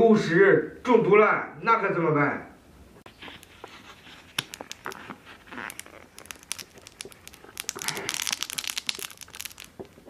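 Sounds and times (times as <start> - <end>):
paper and plastic crinkling: 3.2 - 10.0.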